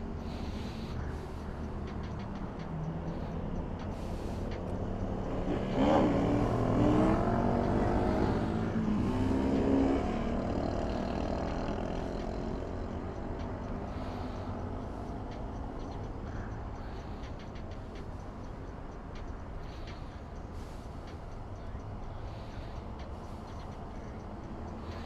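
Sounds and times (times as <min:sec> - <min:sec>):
motorcycle engine accelerating: 0:05.1 - 0:12.8.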